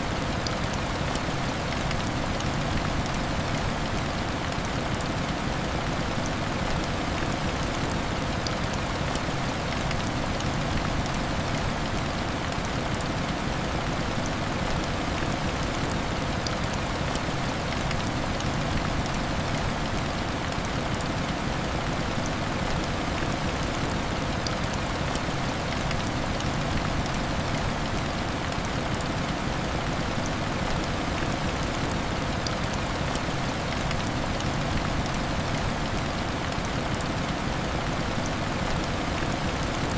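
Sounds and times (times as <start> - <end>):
heavy rain on window glass: 0.1 - 39.9.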